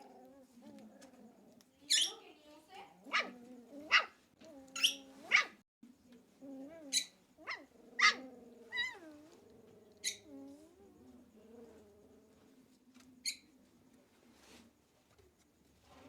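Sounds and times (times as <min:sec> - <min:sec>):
dog whining grumble: 0:00.0 - 0:01.6, 0:03.0 - 0:05.6, 0:06.4 - 0:12.5
dogs yipping and barking: 0:01.9 - 0:02.2, 0:03.1 - 0:05.6, 0:06.9 - 0:09.1.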